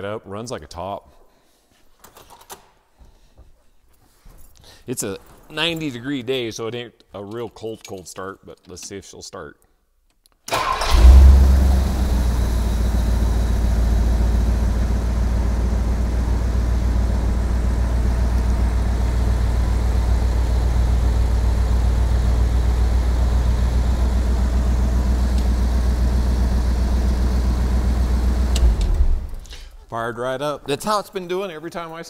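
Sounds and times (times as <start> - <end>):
car engine idling: 10.5 - 29.9.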